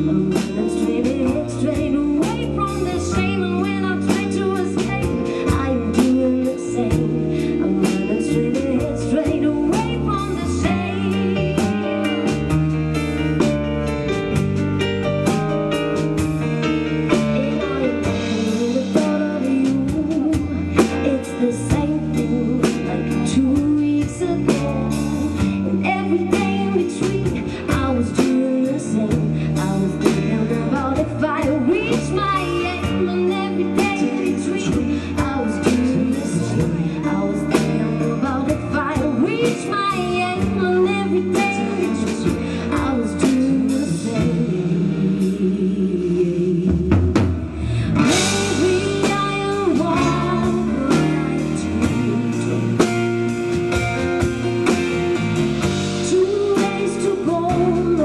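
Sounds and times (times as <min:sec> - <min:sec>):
band song with singing: 0:17.1 - 0:58.0.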